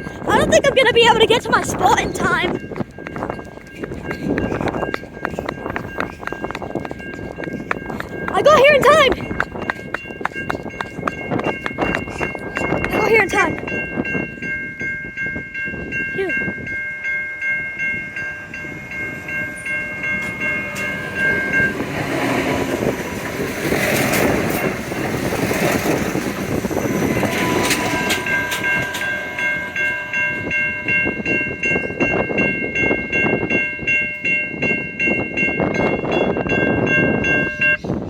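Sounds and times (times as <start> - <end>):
railcar running: 0.0 - 38.0
wheels clacking over rail joints: 0.5 - 13.8, 18.8 - 31.4
high ringing tone: 1.6 - 38.0.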